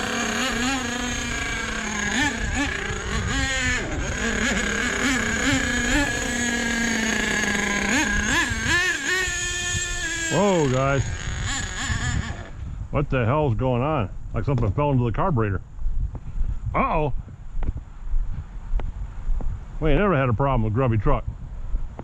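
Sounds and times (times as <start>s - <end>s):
small nitro engine buzzing and revving: 0.0s - 12.7s.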